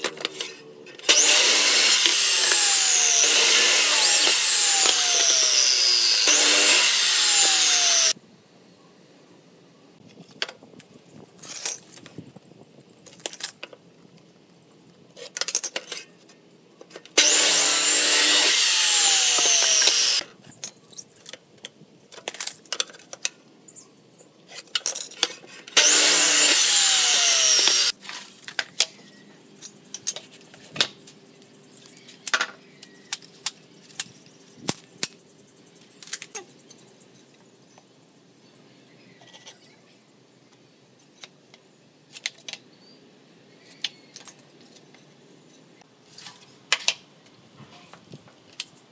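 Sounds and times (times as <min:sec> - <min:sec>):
miter saw cutting wood: 0:00.3 - 0:08.2, 0:17.2 - 0:20.2, 0:25.8 - 0:28.0.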